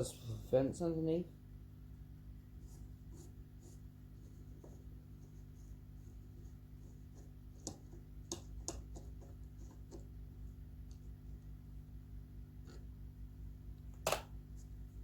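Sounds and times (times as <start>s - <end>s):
steady low hum: 0.0s - 15.0s
hands and tool clicking and scraping: 6.9s - 10.2s.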